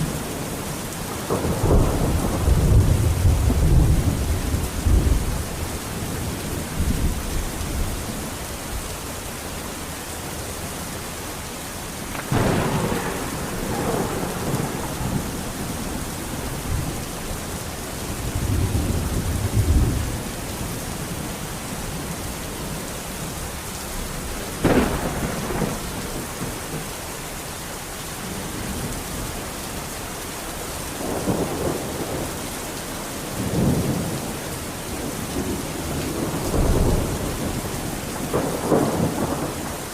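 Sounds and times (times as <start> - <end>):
heavy rain: 0.0 - 39.9
thunderclaps and rumbles: 0.1 - 8.4, 12.0 - 27.0, 31.0 - 39.9.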